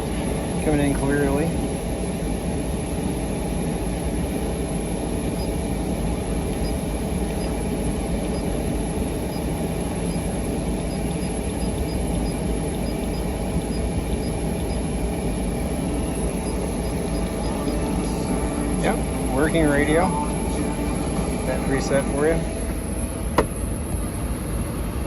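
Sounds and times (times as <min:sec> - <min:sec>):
air-conditioning fan blowing: 0:00.0 - 0:25.0
diesel engine idling: 0:15.7 - 0:23.9.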